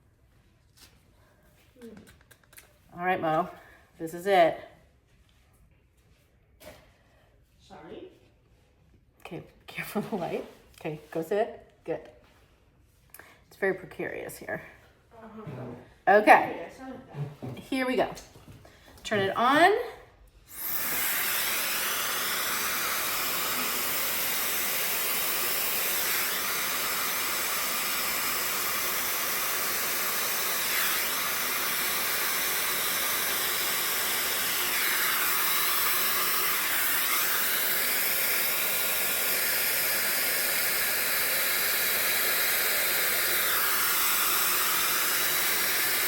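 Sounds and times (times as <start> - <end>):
hair dryer blowing: 20.5 - 46.0.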